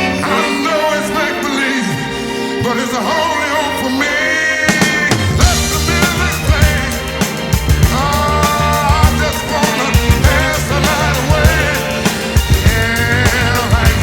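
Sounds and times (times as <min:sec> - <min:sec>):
person singing a melody: 0:00.0 - 0:14.0
heavy drum and bass beat: 0:04.7 - 0:14.0.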